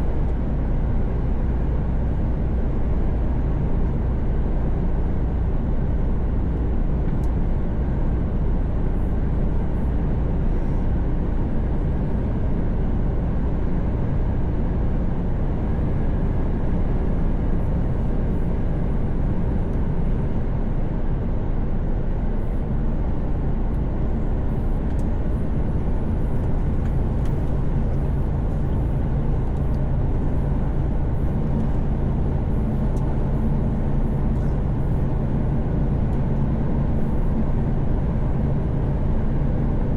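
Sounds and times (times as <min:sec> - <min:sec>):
road and tyre noise: 0:00.0 - 0:39.9
truck engine drone: 0:00.0 - 0:39.9.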